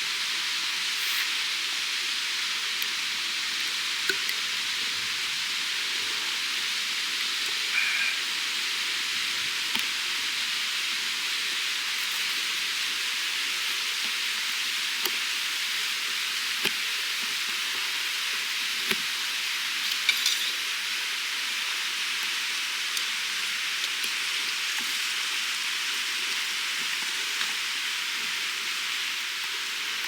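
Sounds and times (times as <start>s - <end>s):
chicken sizzling: 0.0s - 30.0s.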